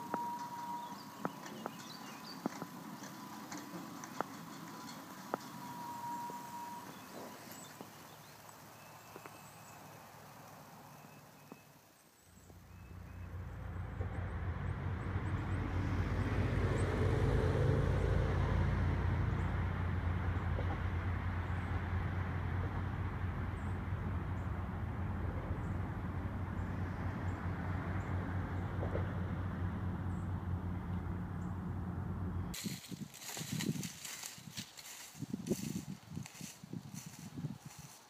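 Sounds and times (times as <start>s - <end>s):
steady engine drone: 0.0s - 7.4s, 12.7s - 33.4s.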